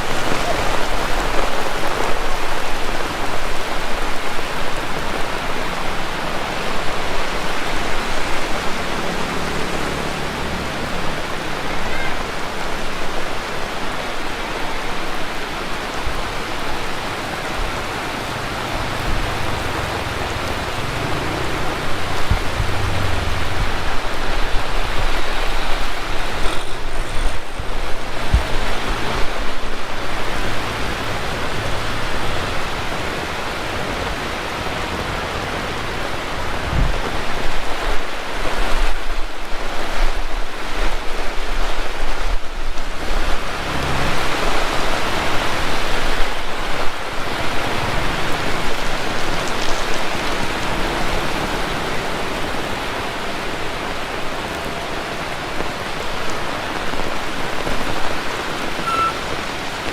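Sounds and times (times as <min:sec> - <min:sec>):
heavy rain pouring: 0:00.0 - 0:59.9
low rumbling: 0:17.7 - 0:37.7.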